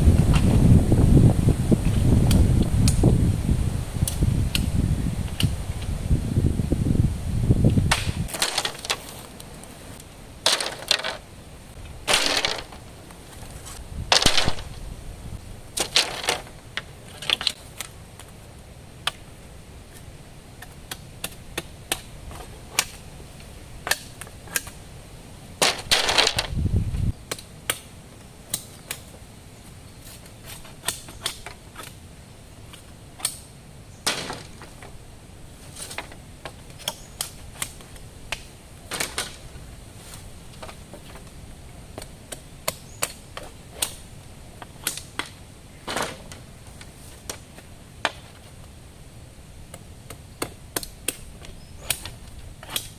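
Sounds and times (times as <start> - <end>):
rustling or scraping: 7.6 - 18.4, 25.6 - 27.1, 29.0 - 32.0, 34.0 - 38.1, 38.8 - 41.8, 45.8 - 48.7.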